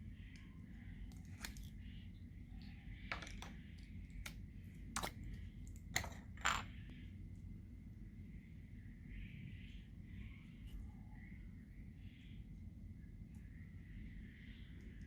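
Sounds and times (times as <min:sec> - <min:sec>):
small hard objects clicking and tapping: 0:03.1 - 0:04.4, 0:05.0 - 0:06.8.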